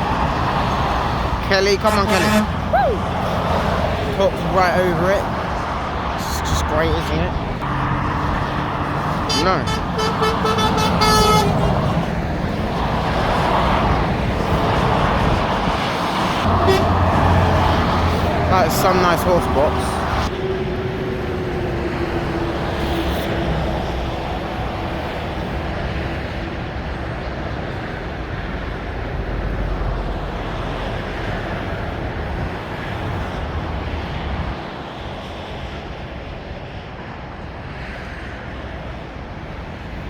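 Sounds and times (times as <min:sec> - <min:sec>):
motorway traffic rushing: 0:00.0 - 0:40.0
falling whine of passing vehicle: 0:06.9 - 0:35.9.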